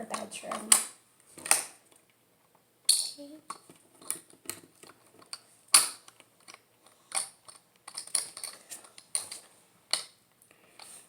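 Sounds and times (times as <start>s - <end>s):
plastic bricks clicking: 2.9s - 10.2s.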